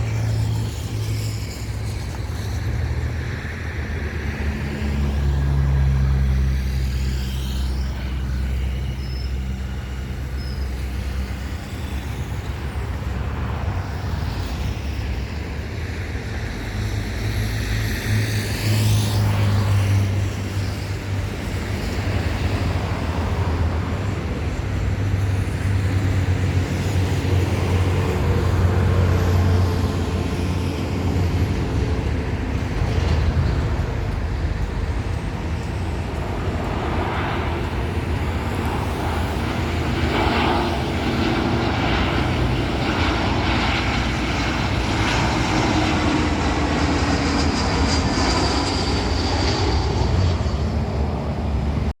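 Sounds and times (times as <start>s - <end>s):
vehicles passing: 0.0s - 52.0s
low engine rumble: 22.3s - 52.0s.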